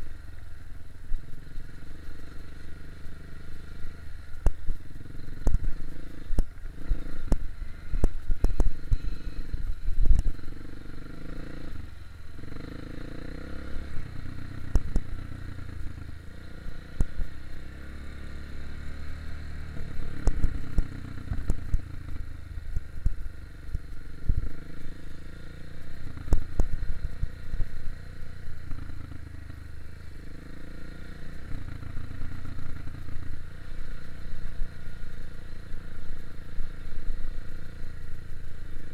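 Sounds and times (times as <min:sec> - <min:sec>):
dirt bike engine revving: 0:04.8 - 0:22.2.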